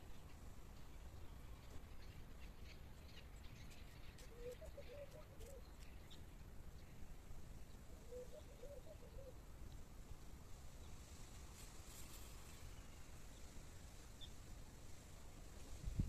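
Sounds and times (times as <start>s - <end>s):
low warbling bird calls: 2.0s - 7.0s, 7.7s - 9.4s.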